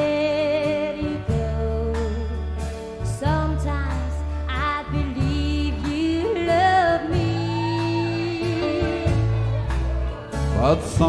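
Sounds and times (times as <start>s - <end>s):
country band playing: 0.0s - 11.0s
sliding guitar melody: 0.0s - 11.0s.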